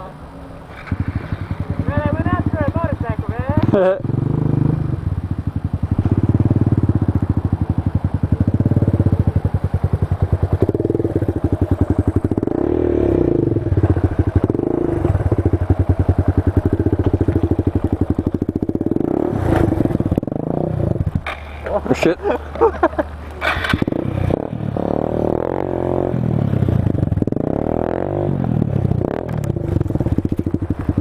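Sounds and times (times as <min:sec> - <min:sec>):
motorcycle engine idling: 0:00.8 - 0:24.3, 0:28.4 - 0:31.0.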